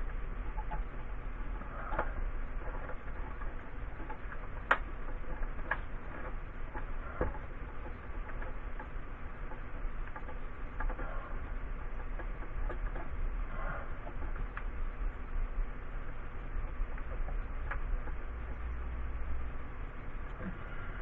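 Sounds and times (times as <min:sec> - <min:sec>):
hands clicking on electrical wiring: 0:00.0 - 0:14.8
steady low hum: 0:00.0 - 0:21.0.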